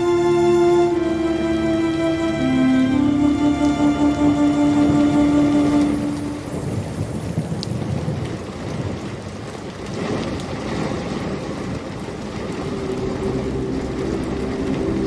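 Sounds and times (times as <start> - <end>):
heavy rain: 0.0 - 15.0
low rolling thunder: 4.6 - 15.0.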